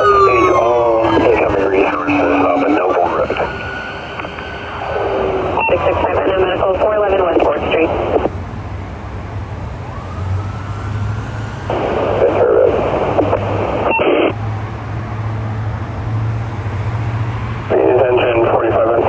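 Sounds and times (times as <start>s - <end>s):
fire siren wailing: 0.0s - 8.3s, 9.8s - 14.0s
scanner radio transmission: 0.0s - 8.3s.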